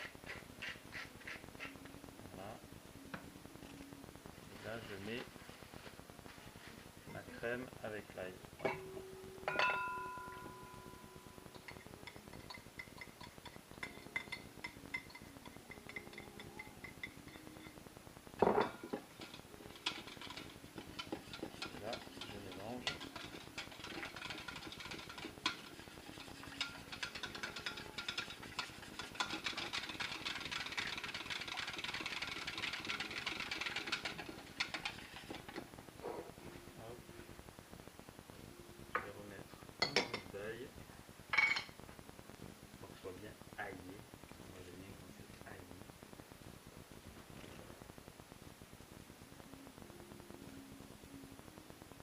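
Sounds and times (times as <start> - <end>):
utensil clinking against bowl: 18.4 - 35.6.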